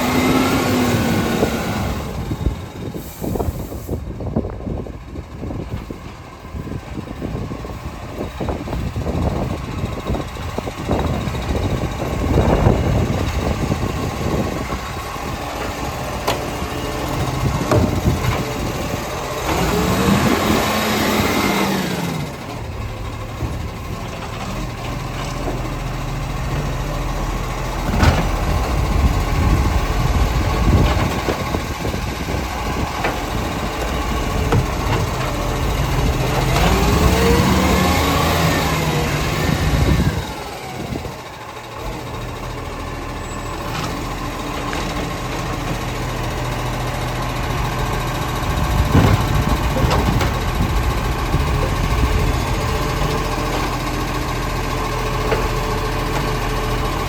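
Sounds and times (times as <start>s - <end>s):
diesel engine idling and revving: 0.0s - 57.0s
knocks and clanks: 17.2s - 18.7s, 32.8s - 35.4s, 48.6s - 52.1s.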